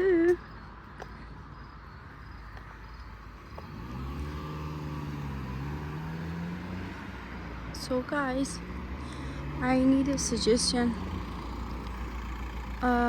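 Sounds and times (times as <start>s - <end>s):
car engine hum: 0.0s - 13.0s.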